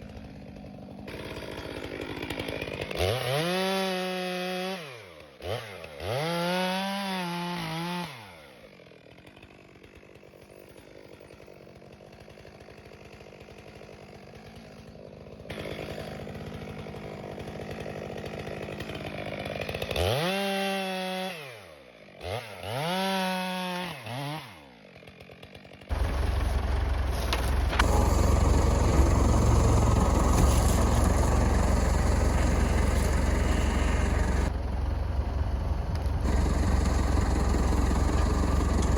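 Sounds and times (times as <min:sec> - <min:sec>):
chainsaw revving: 0:00.0 - 0:38.9
tractor engine rumble: 0:25.9 - 0:38.9.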